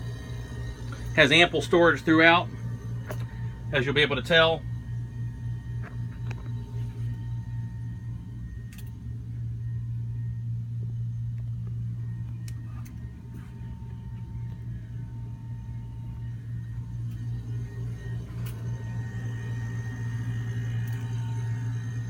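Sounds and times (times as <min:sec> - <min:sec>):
air-conditioning unit humming: 0:00.0 - 0:22.0
faint high whine: 0:00.0 - 0:22.0.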